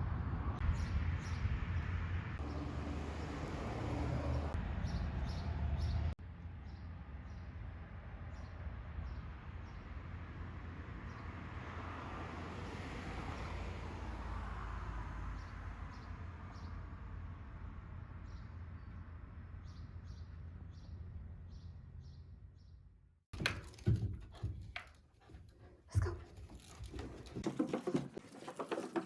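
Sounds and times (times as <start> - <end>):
small birds chirping: 18.2 - 22.9.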